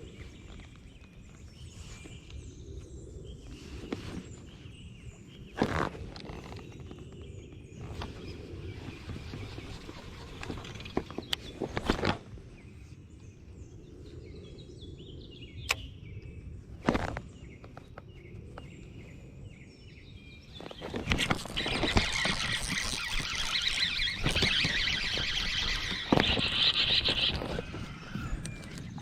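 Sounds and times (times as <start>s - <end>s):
faint bird chirps: 0.0s - 29.0s
high-pitched whirring: 21.1s - 29.0s.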